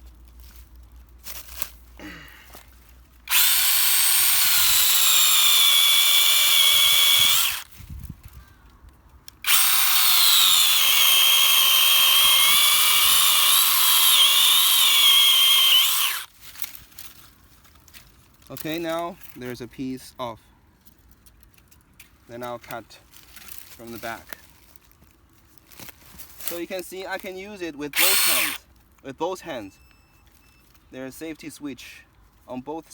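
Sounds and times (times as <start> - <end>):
electric chainsaw cutting wood: 3.3 - 7.7, 9.4 - 16.3, 27.9 - 28.6.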